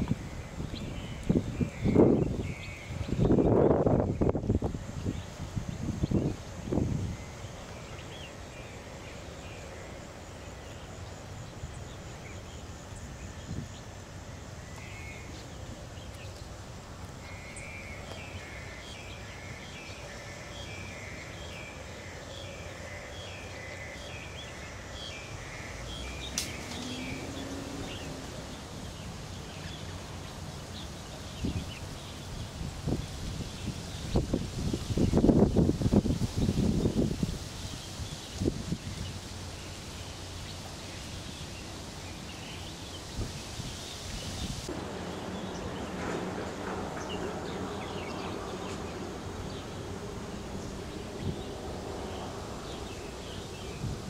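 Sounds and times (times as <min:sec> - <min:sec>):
low wind rumble: 0:00.0 - 0:54.0
sharp click: 0:26.3 - 0:26.8.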